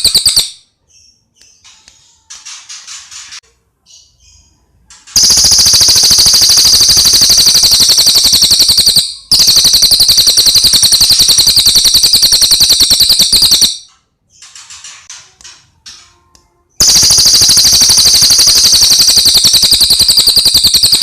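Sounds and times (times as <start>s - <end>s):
fast rattling bird trill: 0.0s - 0.6s, 5.1s - 13.8s, 16.8s - 21.0s
bird chirps: 0.0s - 2.3s, 3.8s - 14.7s, 16.8s - 21.0s.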